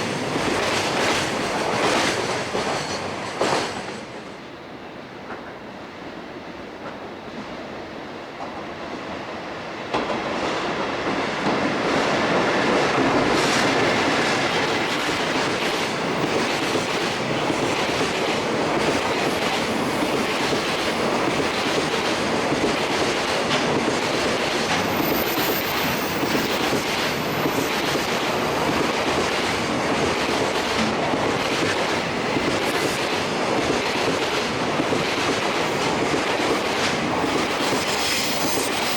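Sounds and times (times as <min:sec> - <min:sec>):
freight train rumbling past: 0:00.0 - 0:38.9
faint high wheel squeal: 0:24.7 - 0:28.7, 0:37.3 - 0:38.9.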